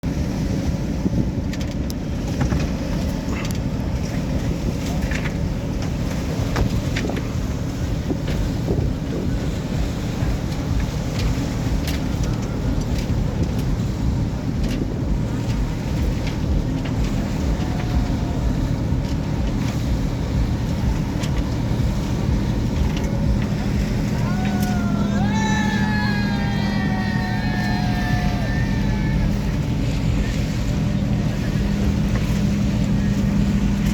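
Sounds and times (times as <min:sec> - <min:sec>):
steady low hum: 0:00.0 - 0:33.9
water noise: 0:00.0 - 0:33.9
wind buffeting microphone: 0:00.0 - 0:33.9.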